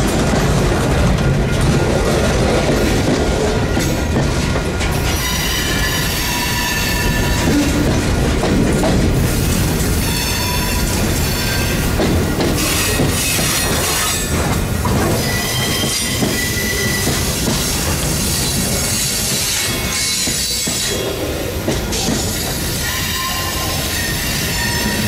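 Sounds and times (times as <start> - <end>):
steel wheels rumbling on rail: 0.0 - 25.0
high wheel squeal: 15.2 - 17.2, 22.8 - 25.0.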